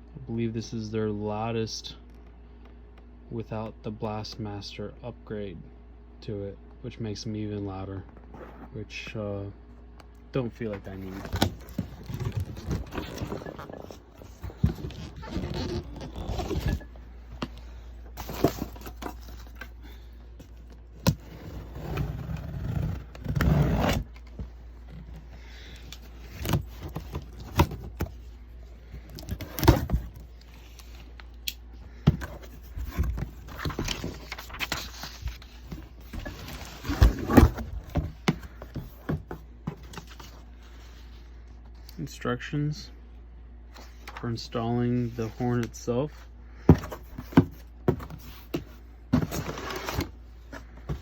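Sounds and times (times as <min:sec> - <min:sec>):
cardboard and plastic rustling: 0:10.6 - 0:41.8, 0:46.6 - 0:51.0.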